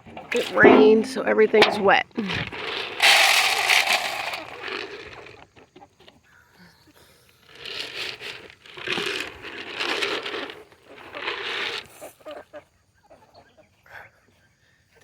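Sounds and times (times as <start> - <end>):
animal feed rustling and crinkling: 0.0 - 6.4, 7.3 - 12.7.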